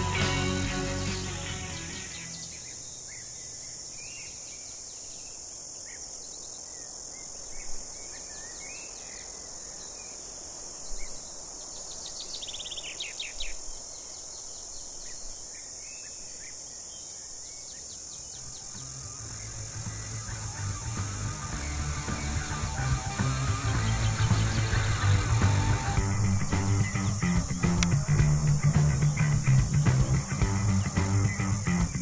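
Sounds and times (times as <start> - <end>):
high-pitched insect drone: 0.0 - 3.3, 18.2 - 32.0
bird calls: 0.0 - 5.3, 10.9 - 32.0
quick run of clicks: 21.0 - 32.0.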